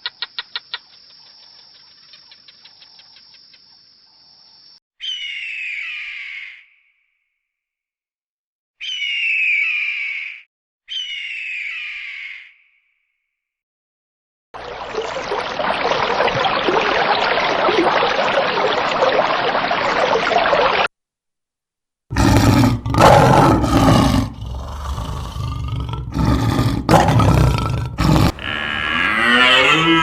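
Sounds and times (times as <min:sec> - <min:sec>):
rushing water: 0:14.6 - 0:20.9
large animal roaring: 0:22.1 - 0:30.0.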